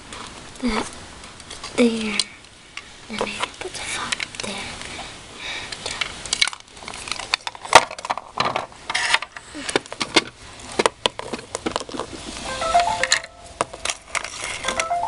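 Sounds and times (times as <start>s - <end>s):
small hard objects clicking: 5.7s - 8.3s.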